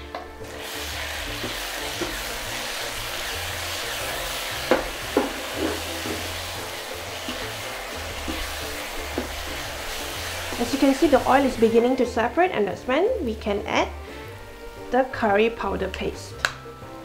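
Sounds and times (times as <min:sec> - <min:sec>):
paste sizzling in hot oil: 0:00.3 - 0:12.9
wooden spatula knocking pan: 0:04.6 - 0:06.4, 0:08.2 - 0:09.6.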